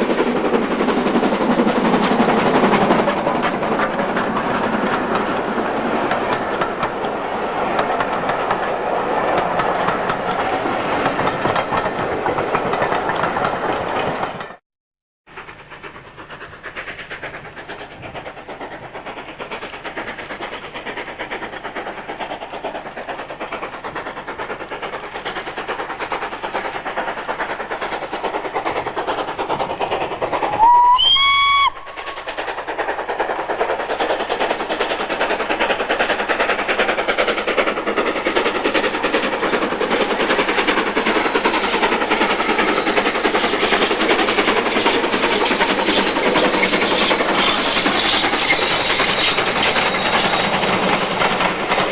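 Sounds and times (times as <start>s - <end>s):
steam locomotive chuffing: 0.0s - 14.6s, 15.2s - 51.9s
steam whistle blast: 30.5s - 31.9s.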